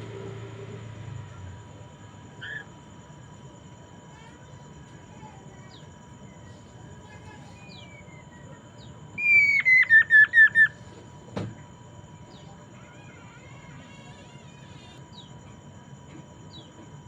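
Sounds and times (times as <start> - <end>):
bird singing: 2.4 - 2.8, 7.5 - 10.8, 12.2 - 15.4, 16.5 - 16.8.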